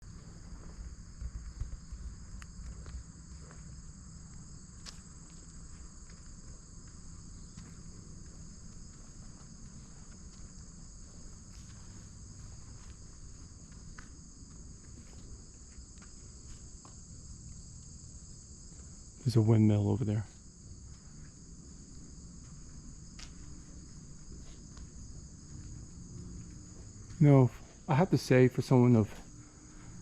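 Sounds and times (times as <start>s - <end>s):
crickets chirping: 0.0s - 30.0s
faint ticks: 1.6s - 3.7s, 13.6s - 17.9s.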